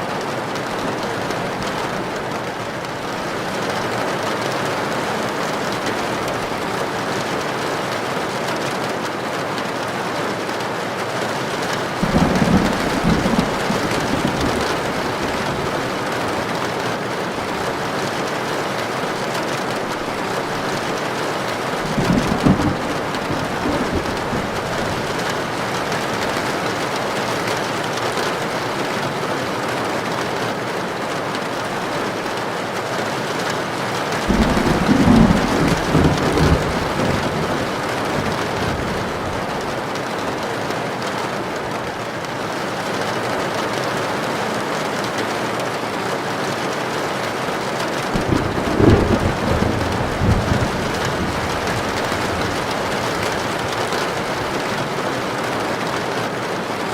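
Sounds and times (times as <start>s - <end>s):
heavy rain on a tin roof: 0.0s - 56.9s
thunder rolling: 11.6s - 17.8s, 19.8s - 26.6s, 34.2s - 39.8s, 48.1s - 55.0s.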